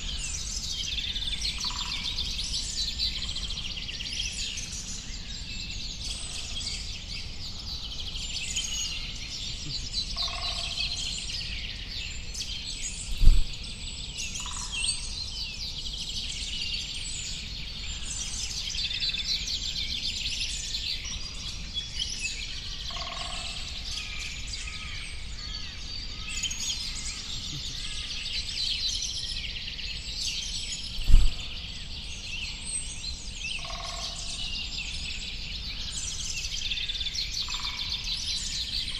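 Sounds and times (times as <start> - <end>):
small birds chirping: 0.0 - 38.9
low thumps: 13.1 - 13.6, 31.0 - 31.6
lower bird calls: 30.8 - 32.0.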